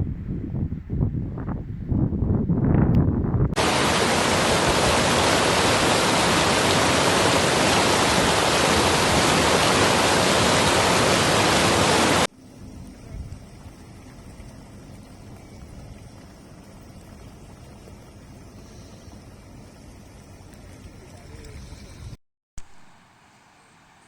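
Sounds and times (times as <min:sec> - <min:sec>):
rushing water: 0:03.6 - 0:21.8.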